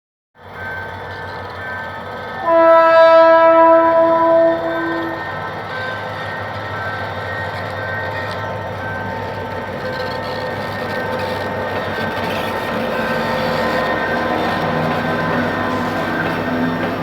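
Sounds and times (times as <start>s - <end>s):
diesel locomotive engine running: 0.4s - 17.0s
locomotive horn blast: 2.4s - 5.4s.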